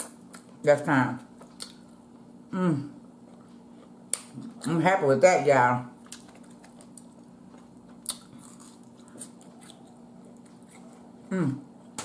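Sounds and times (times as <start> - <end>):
person chewing: 3.2 - 4.7, 6.0 - 12.0.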